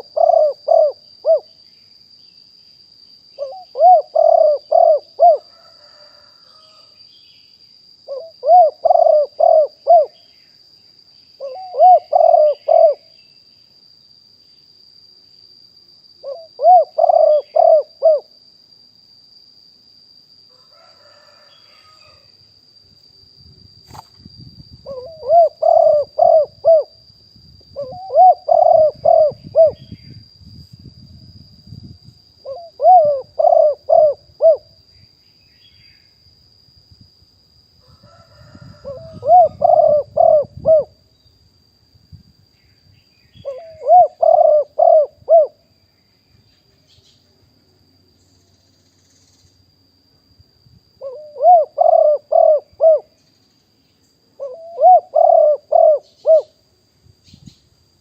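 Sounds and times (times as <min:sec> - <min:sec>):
dove cooing: 0:00.0 - 0:01.5, 0:03.4 - 0:06.7, 0:08.1 - 0:10.2, 0:11.4 - 0:13.1, 0:16.2 - 0:18.3, 0:24.8 - 0:27.0, 0:27.8 - 0:29.9, 0:32.4 - 0:34.7, 0:38.1 - 0:41.0, 0:43.4 - 0:45.6, 0:51.0 - 0:53.2, 0:54.4 - 0:56.6.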